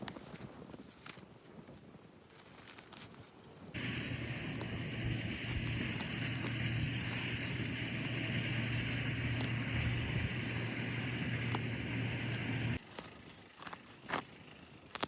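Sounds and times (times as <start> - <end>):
small engine humming: 3.8 - 14.9.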